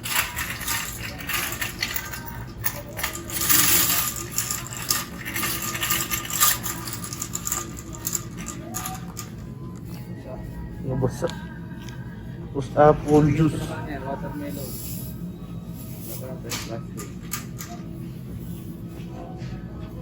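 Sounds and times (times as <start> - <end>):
groceries clattering: 0.0 - 9.8.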